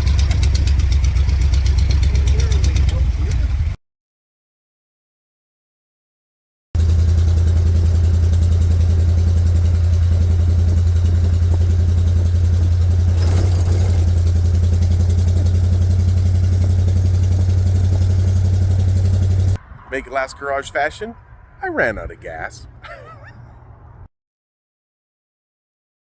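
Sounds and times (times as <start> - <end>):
car engine idling: 0.0 - 3.7, 6.8 - 19.6.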